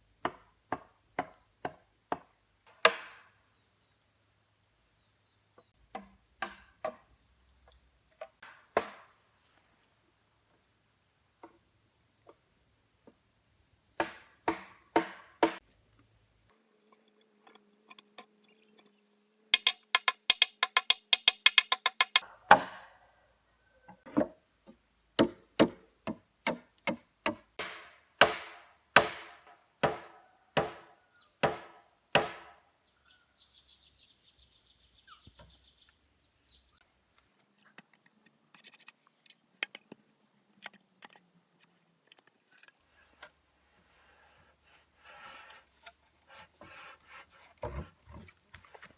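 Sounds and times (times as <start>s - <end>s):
hand tool tapping wood: 19.6s - 22.2s
faint scraping and rustling: 37.2s - 48.9s.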